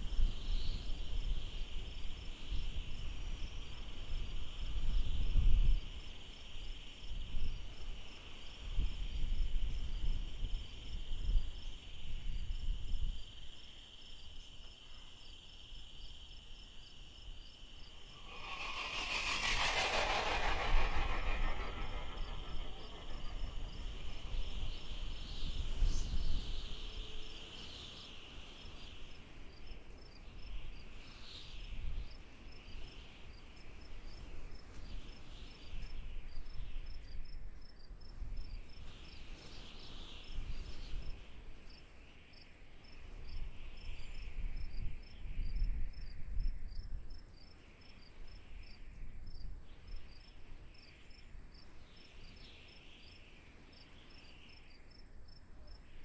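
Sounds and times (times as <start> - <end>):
low rumbling: 18.2 - 24.7.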